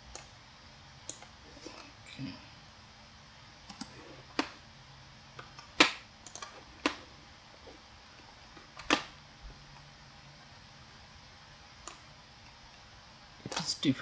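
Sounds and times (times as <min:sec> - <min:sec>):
computer mouse clicking: 0:00.1 - 0:00.4, 0:03.6 - 0:04.6, 0:05.3 - 0:07.0, 0:11.8 - 0:12.1.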